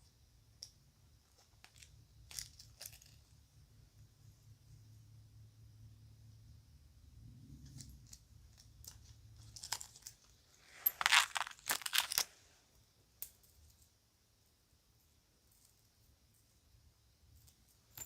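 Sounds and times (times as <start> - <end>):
bag crinkling: 10.7 - 12.3.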